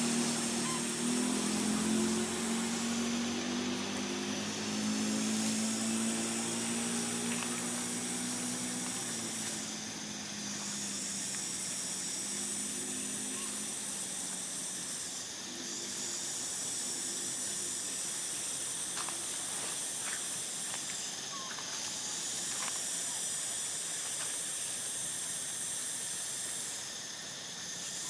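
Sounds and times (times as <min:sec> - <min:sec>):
high-pitched hiss: 0:00.0 - 0:28.0.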